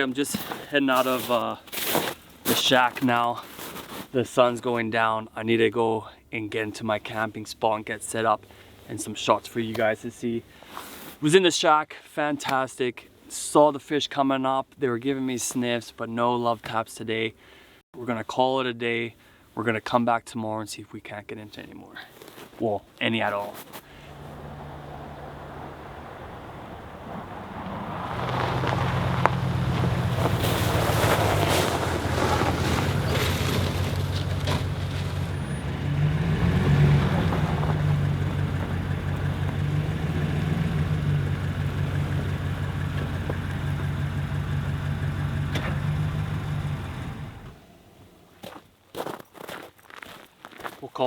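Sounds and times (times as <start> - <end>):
pickup truck engine running: 24.0 - 47.6.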